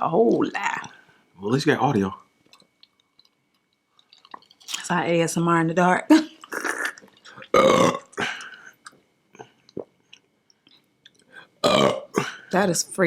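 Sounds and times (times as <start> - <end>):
person burping: 6.1 - 9.0, 11.6 - 12.5.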